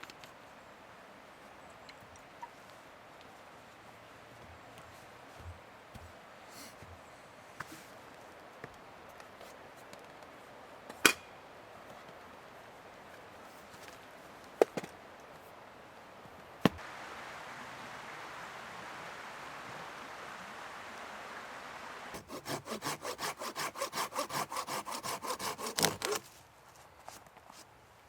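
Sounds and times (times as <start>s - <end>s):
steady rushing hiss: 16.8s - 22.2s
blade chopping wood: 23.6s - 26.3s.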